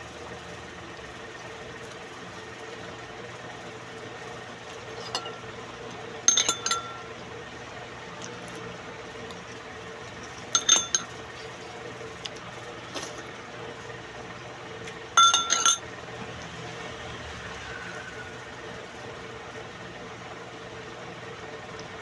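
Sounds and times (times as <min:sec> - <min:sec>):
steady low hum: 0:04.4 - 0:15.8
utensils clinking on dishware: 0:04.9 - 0:05.5, 0:06.3 - 0:07.2, 0:10.4 - 0:11.6, 0:15.2 - 0:15.8.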